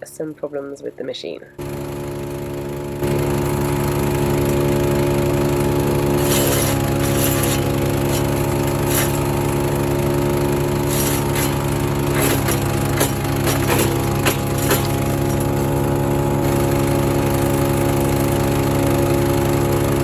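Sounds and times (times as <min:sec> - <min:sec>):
wood shredder running: 0:01.6 - 0:20.0
wood splintering cracks: 0:06.2 - 0:09.3, 0:10.9 - 0:15.5.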